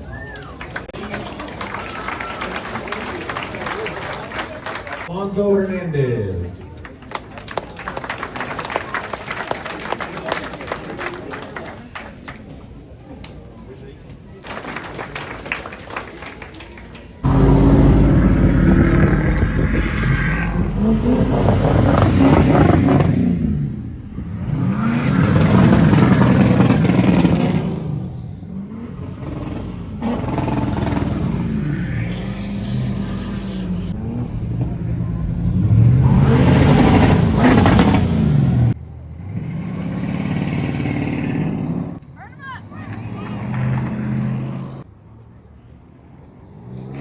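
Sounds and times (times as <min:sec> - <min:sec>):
car engine revving: 0:17.2 - 0:42.0, 0:42.8 - 0:44.8.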